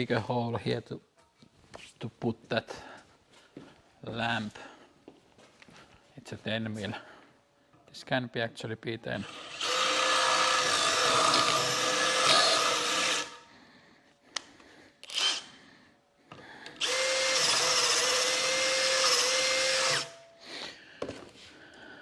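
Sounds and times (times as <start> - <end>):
electric drill boring: 9.2 - 13.4, 15.0 - 15.5, 16.7 - 20.3.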